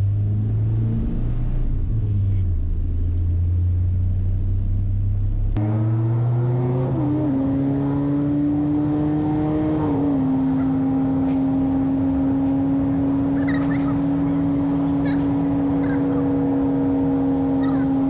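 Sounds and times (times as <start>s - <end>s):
pickup truck engine humming: 5.6s - 18.0s.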